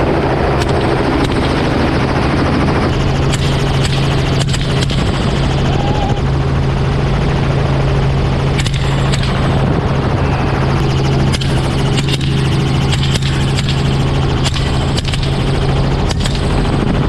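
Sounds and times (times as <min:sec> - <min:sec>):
helicopter engine and rotor: 0:00.0 - 0:17.0
rifle shots: 0:03.2 - 0:05.5, 0:08.6 - 0:09.7, 0:11.2 - 0:16.8.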